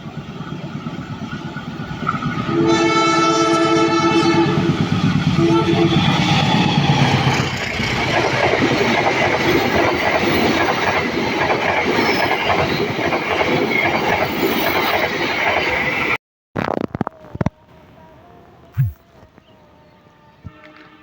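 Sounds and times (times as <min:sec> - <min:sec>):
train wheels clattering on rails: 0:00.0 - 0:15.9.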